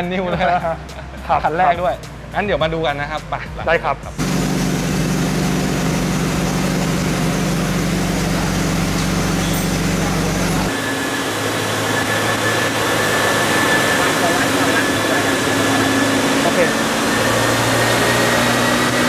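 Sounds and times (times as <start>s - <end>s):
cooling fans rushing air: 0.0s - 19.0s
car engine idling: 4.1s - 18.6s
thin high whine: 4.2s - 19.0s.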